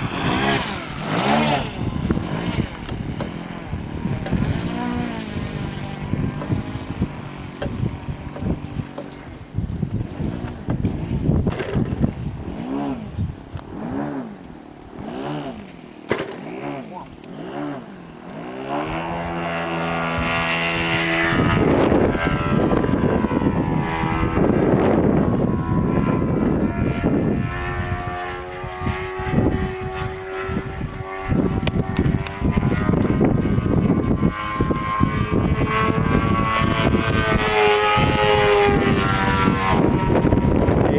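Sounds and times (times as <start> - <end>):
model airplane engine revving: 0.0 - 40.9.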